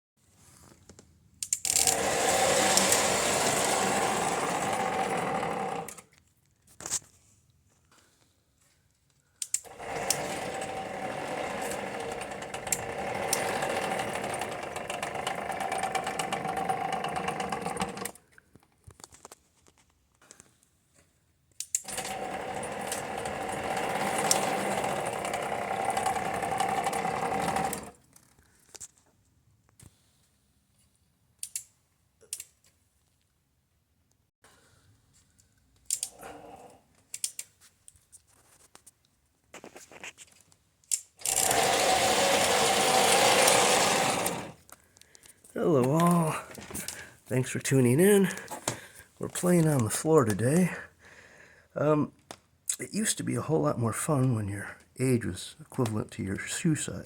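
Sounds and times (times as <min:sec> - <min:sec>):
model train motor whirring: 0:01.5 - 0:06.1, 0:09.5 - 0:18.2, 0:21.7 - 0:28.0, 0:40.9 - 0:44.7.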